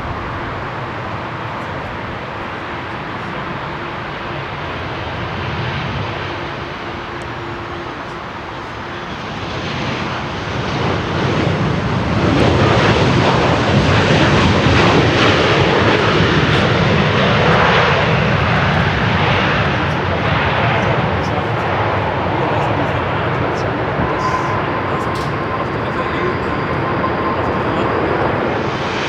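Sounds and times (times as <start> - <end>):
jet engine rushing: 0.0 - 29.0.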